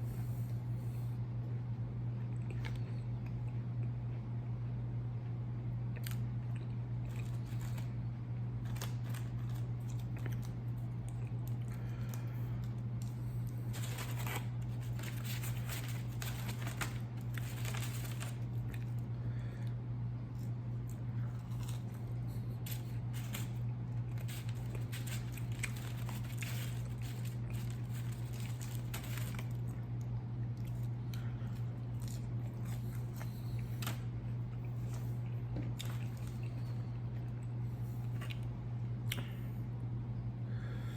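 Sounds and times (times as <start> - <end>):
low electrical hum: 0.0 - 40.9
person chewing and crunching: 2.2 - 4.2, 5.9 - 19.1, 20.2 - 39.4
paper packaging crinkling: 7.0 - 8.0, 8.6 - 10.9, 11.5 - 19.1, 21.2 - 29.8, 30.6 - 36.8.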